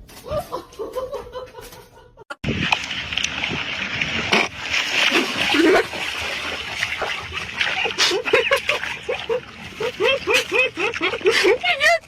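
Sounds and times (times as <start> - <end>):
water splashing: 2.4 - 12.0.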